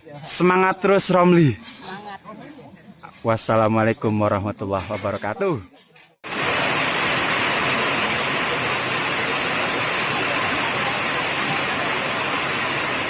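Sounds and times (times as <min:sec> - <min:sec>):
steady rushing hiss: 0:06.3 - 0:13.0.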